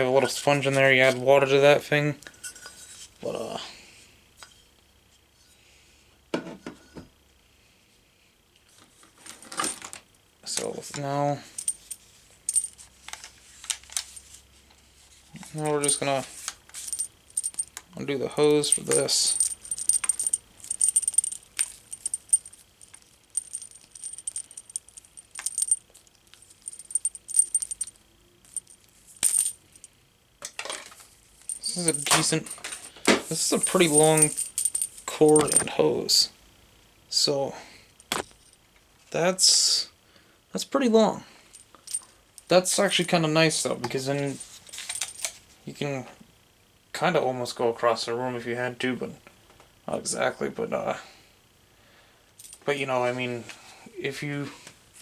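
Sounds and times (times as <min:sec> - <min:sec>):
bright metal clinks: 0:15.6 - 0:16.2, 0:16.9 - 0:17.8, 0:18.4 - 0:29.9, 0:31.5 - 0:32.7, 0:33.4 - 0:35.8
hard parts clicking and knocking: 0:16.8 - 0:17.8, 0:18.5 - 0:26.0, 0:26.6 - 0:29.6, 0:31.5 - 0:35.7, 0:38.1 - 0:38.4.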